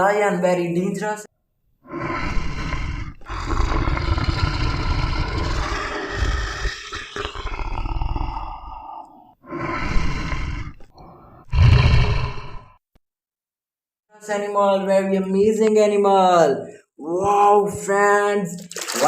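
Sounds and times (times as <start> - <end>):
lion roaring and growling: 1.9 - 12.8.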